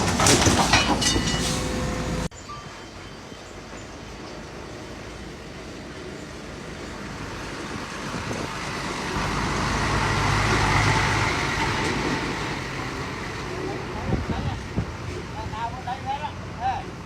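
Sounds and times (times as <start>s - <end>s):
construction machinery engine running: 0.0s - 2.3s.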